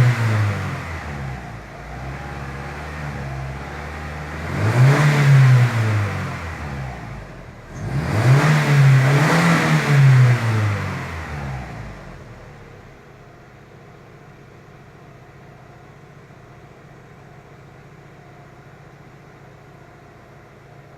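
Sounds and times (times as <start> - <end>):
vehicle engine idling and revving: 0.0 - 20.9.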